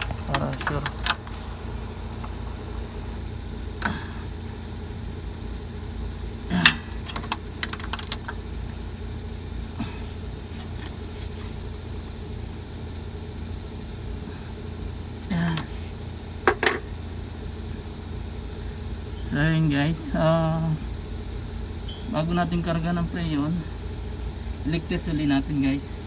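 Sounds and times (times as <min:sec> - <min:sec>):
low machine hum: 0:00.0 - 0:26.0
hand tools clicking on metal: 0:06.6 - 0:08.4.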